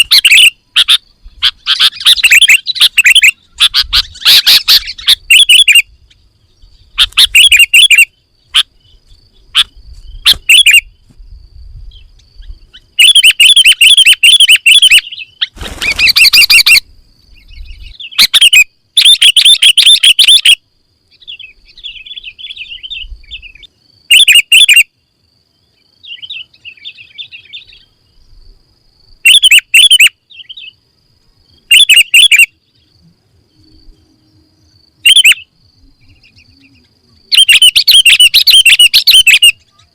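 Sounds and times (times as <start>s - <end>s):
bulbul singing chirping phrases: 0.0s - 11.0s, 11.8s - 28.5s, 29.2s - 30.8s, 31.4s - 39.9s.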